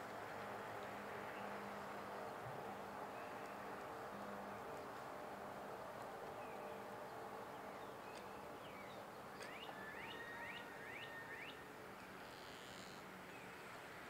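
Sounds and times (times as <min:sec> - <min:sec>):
bird chirping: 0:07.7 - 0:11.6.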